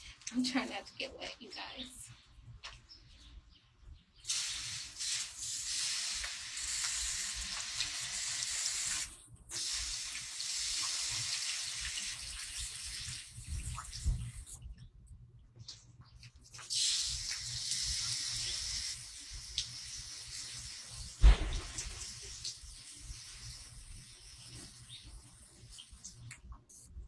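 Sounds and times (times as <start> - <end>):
water running in a hiss: 4.2 - 14.6, 16.6 - 26.4.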